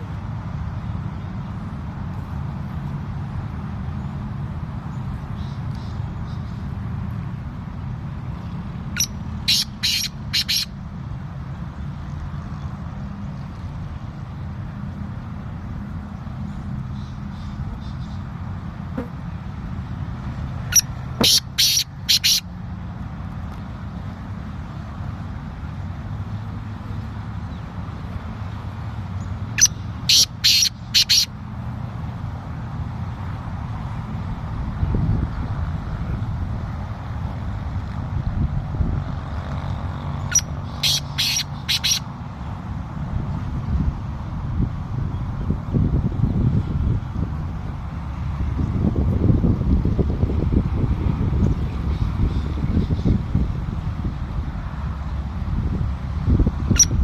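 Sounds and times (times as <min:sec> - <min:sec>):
bird harsh calls: 0:09.0 - 0:10.7, 0:20.7 - 0:22.5, 0:29.6 - 0:31.3, 0:40.3 - 0:42.1.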